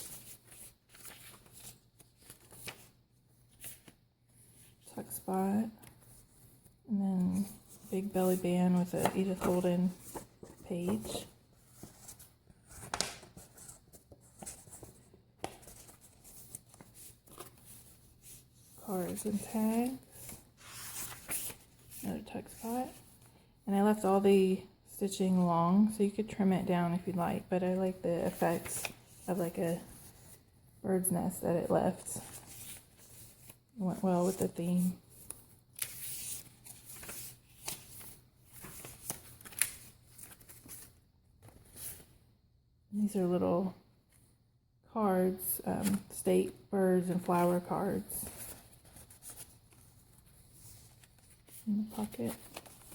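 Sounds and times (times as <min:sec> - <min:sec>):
paper pages rustling: 0:00.0 - 0:04.9, 0:05.8 - 0:22.3, 0:28.3 - 0:30.4, 0:31.9 - 0:33.6, 0:34.2 - 0:42.1, 0:48.2 - 0:52.9.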